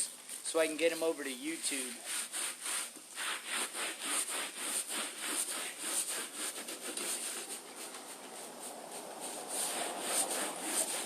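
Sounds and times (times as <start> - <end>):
scrub brush scrubbing wet mat: 0.9 - 11.0.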